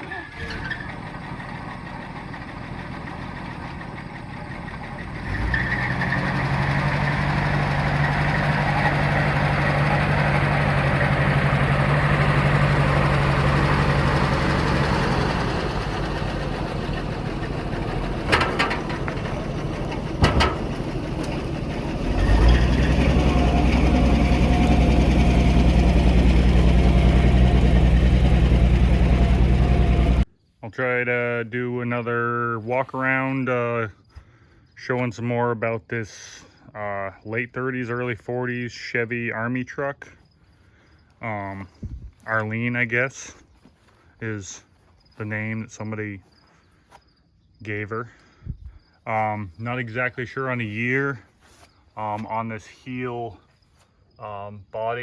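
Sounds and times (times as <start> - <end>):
truck engine running: 0.0 - 30.3.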